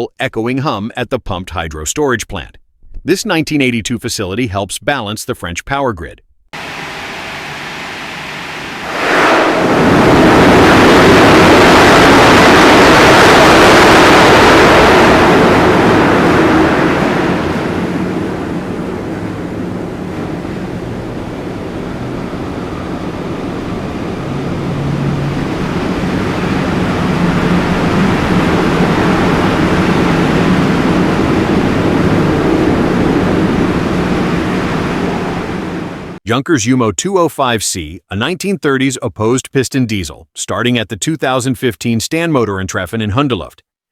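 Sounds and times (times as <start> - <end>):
faint steady hum: 6.2 - 36.2
turbine rushing noise: 6.6 - 36.2.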